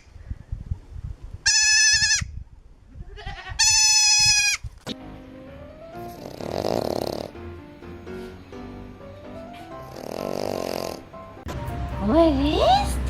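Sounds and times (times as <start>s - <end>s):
goat bleating: 1.4s - 2.3s, 3.0s - 4.6s.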